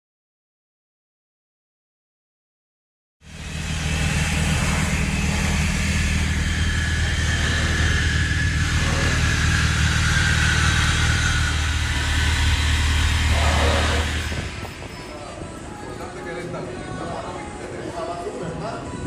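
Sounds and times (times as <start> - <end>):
car engine running steadily: 3.3 - 14.8.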